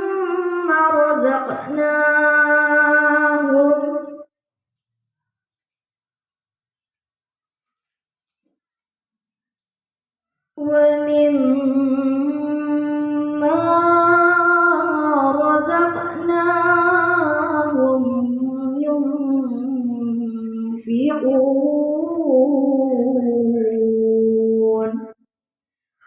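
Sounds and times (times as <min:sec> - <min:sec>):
young person reciting melodically: 0:00.0 - 0:04.3, 0:10.6 - 0:25.2.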